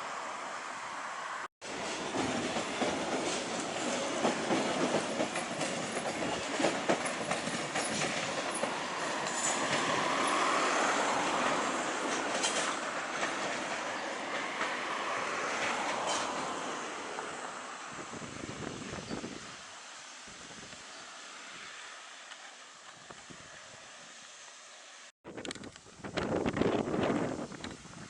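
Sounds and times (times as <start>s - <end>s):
train rushing rolling sound: 1.6s - 19.0s
train wheels clacking over joints: 1.8s - 10.4s, 12.0s - 14.8s.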